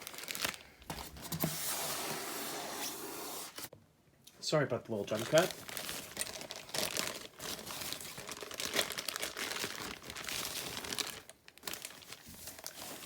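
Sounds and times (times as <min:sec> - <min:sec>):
packaging crinkling: 0:00.0 - 0:01.3, 0:05.1 - 0:13.0.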